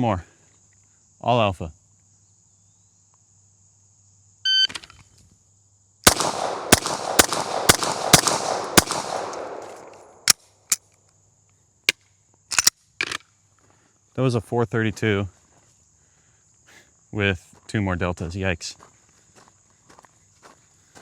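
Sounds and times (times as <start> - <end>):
gunshots in quick succession: 6.1 - 10.4.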